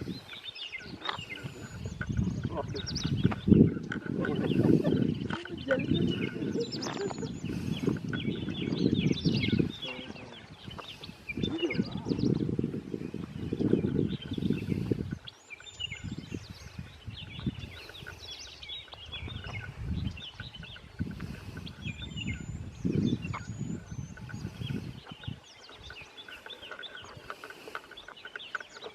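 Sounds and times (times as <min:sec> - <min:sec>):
small birds chirping and trilling: 0:00.0 - 0:28.9.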